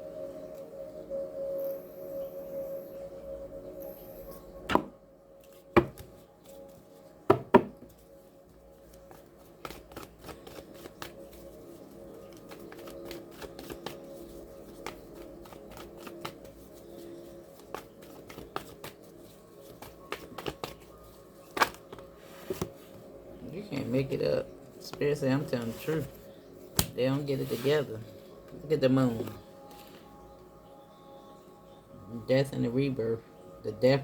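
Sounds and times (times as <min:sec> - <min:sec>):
cards shuffling clicks: 0:09.0 - 0:11.5, 0:12.3 - 0:16.6, 0:17.5 - 0:20.9, 0:21.5 - 0:22.8
card snaps: 0:26.8 - 0:27.0.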